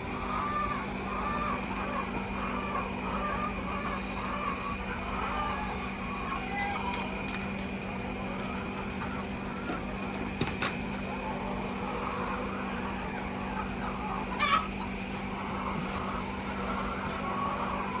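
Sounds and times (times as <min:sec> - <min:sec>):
chickens clucking: 0:00.0 - 0:18.0
steady background hum: 0:00.0 - 0:18.0
loud chicken call: 0:00.2 - 0:07.0, 0:11.9 - 0:18.0.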